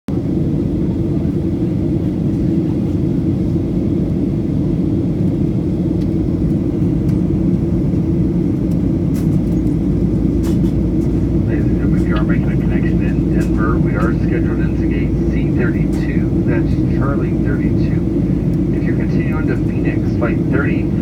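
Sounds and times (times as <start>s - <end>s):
airliner cabin rumble: 0.1s - 21.0s.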